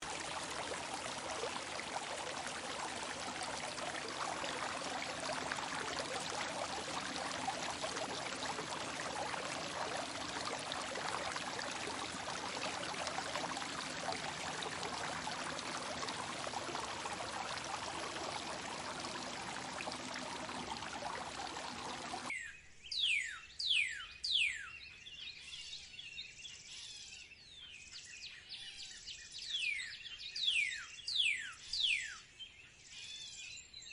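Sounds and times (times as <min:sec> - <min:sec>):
running water rushing: 0:00.0 - 0:22.3.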